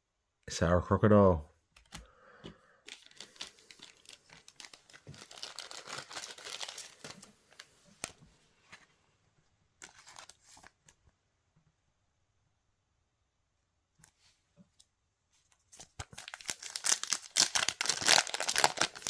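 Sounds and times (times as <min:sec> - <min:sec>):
wrapper crackling and tearing: 0:02.9 - 0:08.1, 0:09.8 - 0:10.7, 0:15.8 - 0:19.0.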